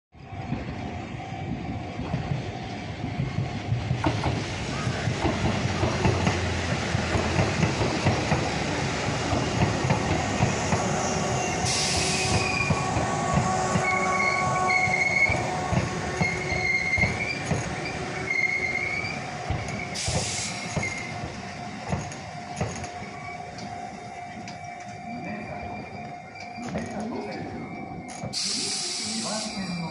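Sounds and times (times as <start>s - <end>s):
train wheels clicking over rails: 1.4s - 23.8s
high brake squeal: 10.8s - 21.2s, 25.0s - 29.9s
short air hisses: 11.7s - 12.6s, 28.4s - 29.6s.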